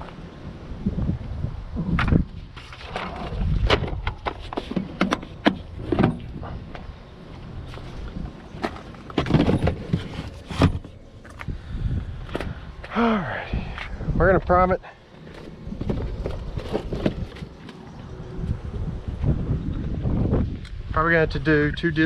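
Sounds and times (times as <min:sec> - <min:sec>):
handling clicks and knocks: 0:03.0 - 0:07.0.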